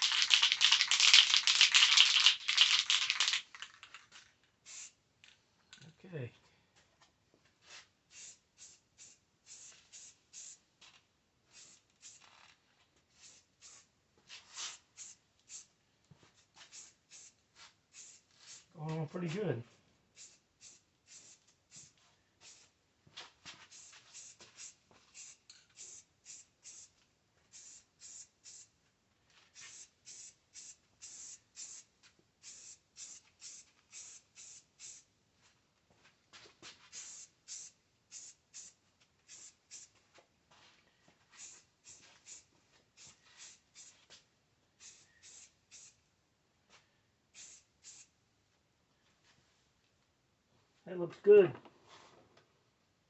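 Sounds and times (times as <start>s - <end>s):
spray can hissing: 0.0s - 3.9s, 4.6s - 5.0s, 8.1s - 10.6s, 11.5s - 12.3s, 13.1s - 13.9s, 14.5s - 15.7s, 16.6s - 18.7s, 20.1s - 22.7s, 23.6s - 28.7s, 29.5s - 35.1s, 36.8s - 39.9s, 41.3s - 44.0s, 44.8s - 46.0s, 47.3s - 48.1s.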